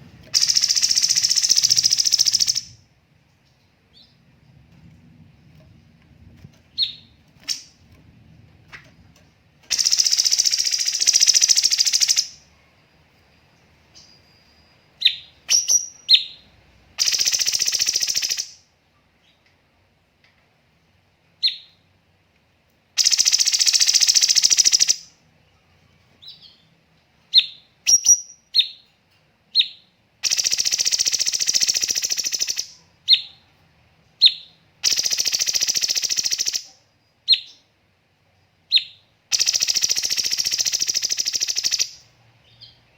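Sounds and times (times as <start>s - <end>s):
bird singing high trilled bursts: 0.3s - 2.8s, 9.7s - 12.4s, 14.0s - 16.4s, 17.0s - 18.6s, 23.0s - 25.1s, 27.4s - 28.8s, 29.6s - 33.3s, 34.2s - 36.7s, 38.7s - 42.1s.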